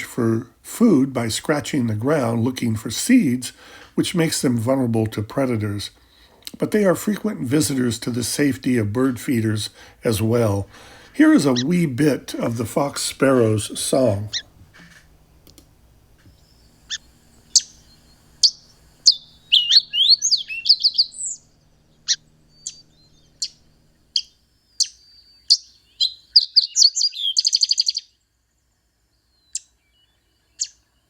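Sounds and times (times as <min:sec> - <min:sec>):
sparrow warbled song: 0:00.0 - 0:15.0, 0:16.2 - 0:28.3, 0:29.1 - 0:31.0
sparrow chip notes: 0:06.6 - 0:14.9
bird trill: 0:09.4 - 0:12.9, 0:14.1 - 0:14.9, 0:16.3 - 0:28.2, 0:29.2 - 0:31.0.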